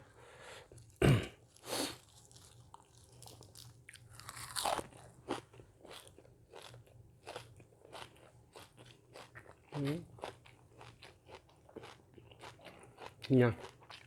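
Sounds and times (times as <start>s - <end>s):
person chewing crunchy food: 0.8s - 14.0s.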